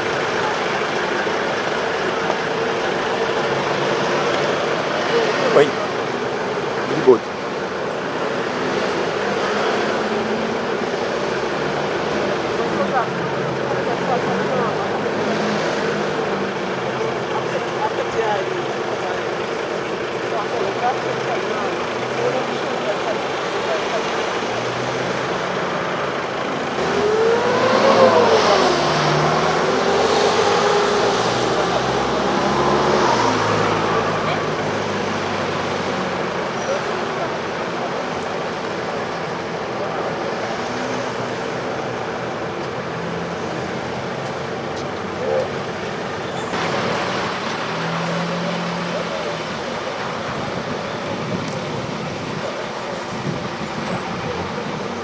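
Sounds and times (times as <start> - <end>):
faint indistinct voices: 0.0 - 55.0
rushing outdoor background noise: 0.0 - 55.0
steady traffic hum: 0.0 - 55.0
vehicle passing close by: 20.6 - 55.0.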